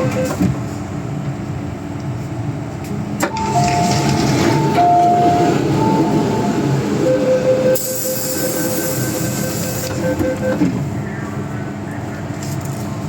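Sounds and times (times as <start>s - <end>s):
train wheels rumbling: 0.0s - 9.8s
hiss: 7.8s - 9.4s.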